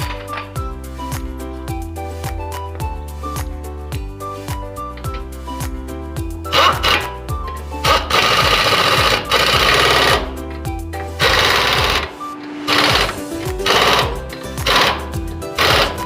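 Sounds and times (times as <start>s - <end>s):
background music with bass: 0.0s - 16.0s
impact wrench rattling: 6.5s - 7.2s, 7.8s - 10.4s, 11.2s - 12.1s, 12.7s - 16.0s.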